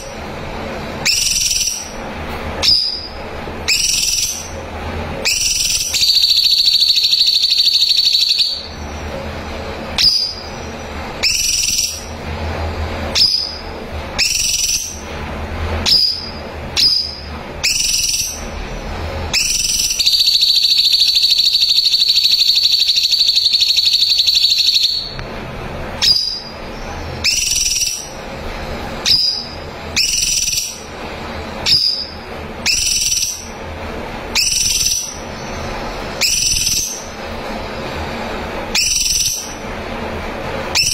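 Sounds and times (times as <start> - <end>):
bird whistling notes: 1.0 - 2.0, 2.6 - 4.6, 5.2 - 8.9, 10.0 - 12.2, 13.1 - 15.1, 15.8 - 18.5, 19.3 - 25.2, 26.0 - 28.2, 29.0 - 30.9, 31.6 - 33.6, 34.4 - 37.2, 38.7 - 39.6
high bird trills: 1.0 - 2.0, 2.6 - 4.6, 5.2 - 9.1, 10.0 - 12.2, 13.1 - 15.1, 15.8 - 18.5, 19.3 - 25.2, 26.0 - 28.2, 29.0 - 30.9, 31.6 - 33.6, 34.4 - 37.2, 38.7 - 39.6.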